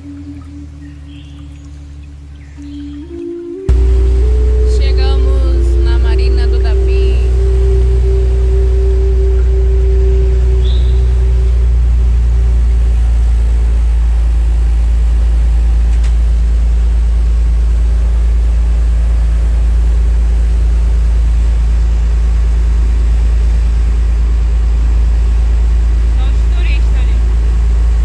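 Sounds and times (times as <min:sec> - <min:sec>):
motorboat engine droning: 0:00.0 - 0:28.0.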